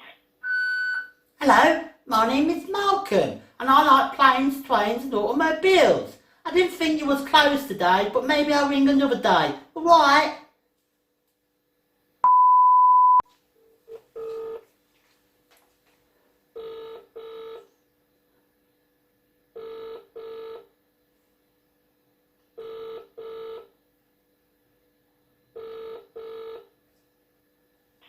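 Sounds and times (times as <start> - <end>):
loud steady beep: 0.4 - 1.1, 12.2 - 13.2
telephone ringing tone: 13.9 - 14.7, 16.6 - 17.7, 19.6 - 20.7, 22.6 - 23.7, 25.6 - 26.7.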